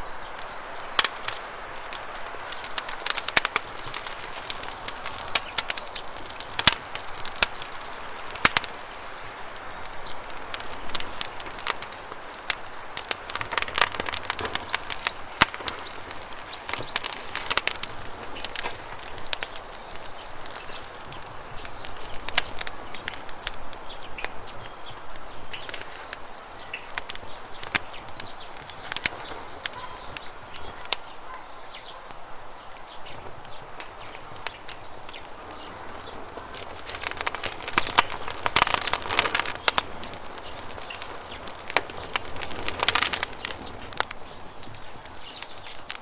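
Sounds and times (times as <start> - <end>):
campfire crackling and popping: 0.0 - 46.0
faint bird chirps: 21.5 - 39.8.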